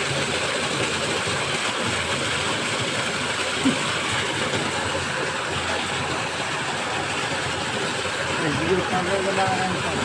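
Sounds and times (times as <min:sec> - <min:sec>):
water rushing into a well: 0:00.0 - 0:10.0.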